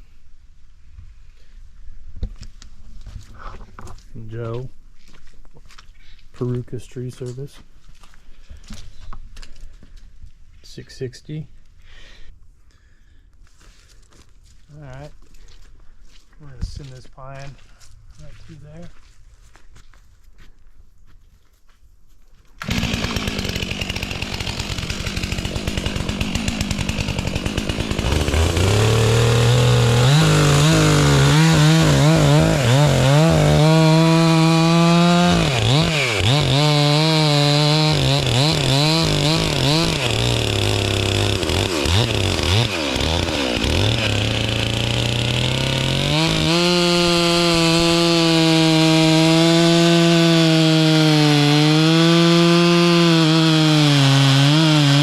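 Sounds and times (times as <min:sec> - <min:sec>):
chainsaw cutting wood: 0:22.6 - 0:55.0.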